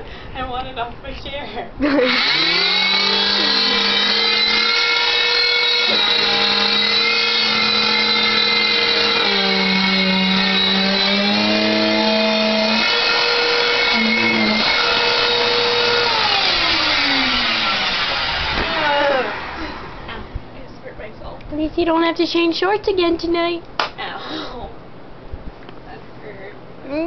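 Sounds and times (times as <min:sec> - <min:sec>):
vacuum cleaner motor whine: 0:01.8 - 0:20.1.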